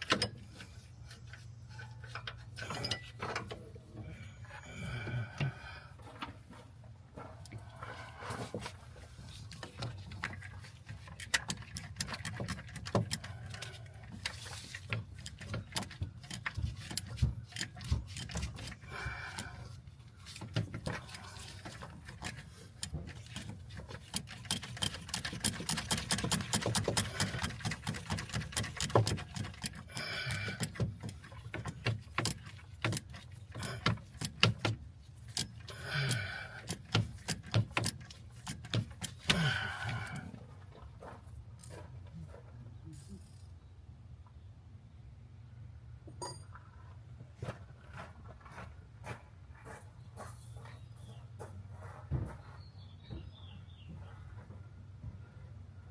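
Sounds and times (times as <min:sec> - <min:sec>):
hand tools clinking on metal: 0:02.2 - 0:03.4, 0:46.2 - 0:46.6.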